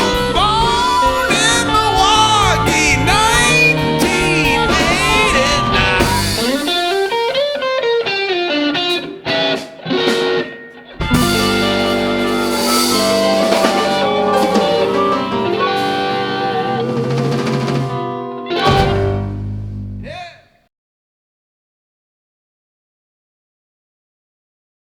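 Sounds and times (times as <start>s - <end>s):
bass guitar: 0.0s - 7.6s, 8.9s - 20.3s
drum kit: 0.0s - 7.7s, 8.9s - 20.3s
live band playing held chords: 0.0s - 8.2s, 8.8s - 20.2s
electric guitar lick: 0.0s - 20.4s.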